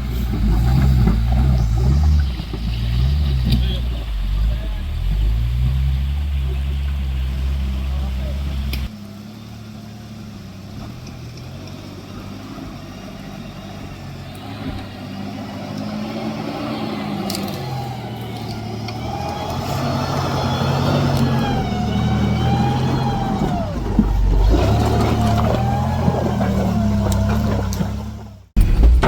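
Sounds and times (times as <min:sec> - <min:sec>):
truck engine revving: 0:00.0 - 0:29.0
heavy low thump: 0:28.6 - 0:29.0.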